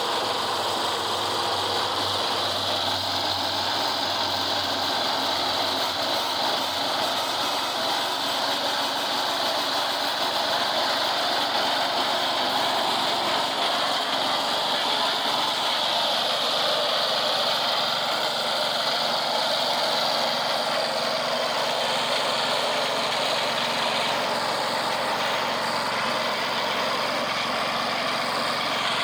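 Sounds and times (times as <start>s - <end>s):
construction machinery engine running: 0.0s - 29.0s.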